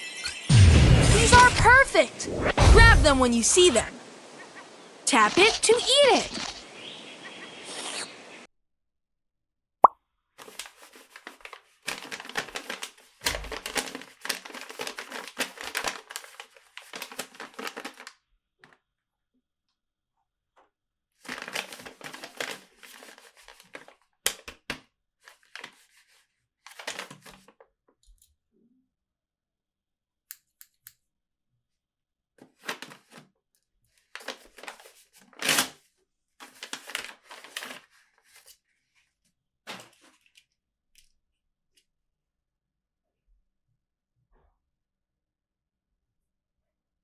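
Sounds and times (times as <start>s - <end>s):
packaging tearing and crinkling: 10.4s - 18.1s, 21.2s - 24.7s, 25.3s - 26.0s, 26.7s - 27.5s, 32.6s - 33.2s, 34.1s - 35.8s, 36.4s - 38.5s.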